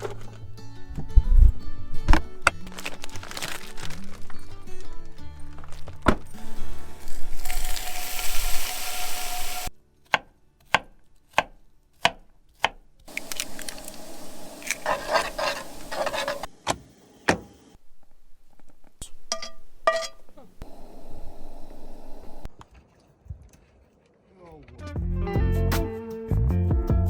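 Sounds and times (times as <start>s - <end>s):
knife chopping on cutting board: 10.1s - 12.8s
scraping and rustling: 13.1s - 16.5s.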